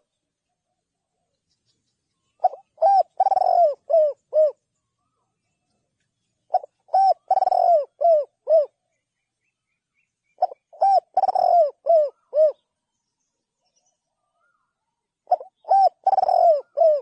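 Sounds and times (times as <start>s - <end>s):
dove cooing: 2.4s - 4.6s, 6.5s - 8.8s, 10.4s - 12.6s, 15.2s - 17.0s.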